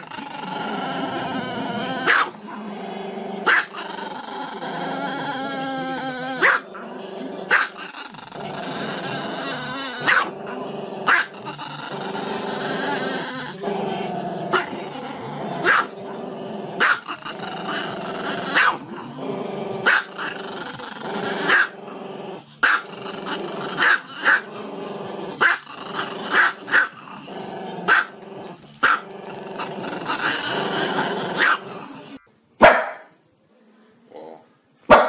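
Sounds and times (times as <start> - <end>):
dog growling: 0.0 - 32.2
dog barking sharply: 32.6 - 33.1.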